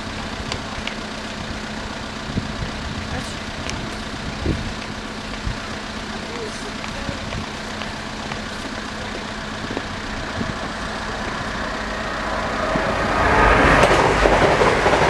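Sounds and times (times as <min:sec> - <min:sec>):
bus engine idling: 0:00.0 - 0:15.0
train passing at speed: 0:10.0 - 0:15.0.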